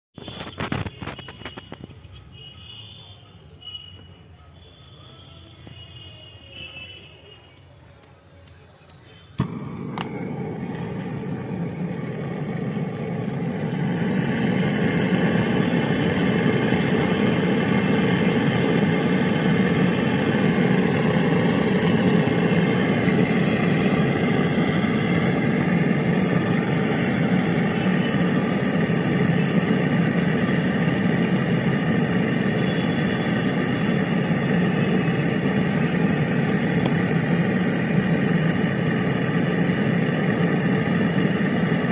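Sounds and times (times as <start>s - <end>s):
motor running steadily: 9.4s - 41.9s.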